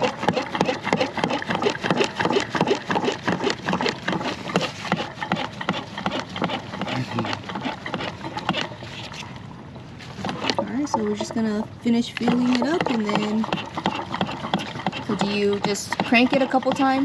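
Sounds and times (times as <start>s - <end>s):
fuel gurgling and splashing: 10.2s - 17.0s.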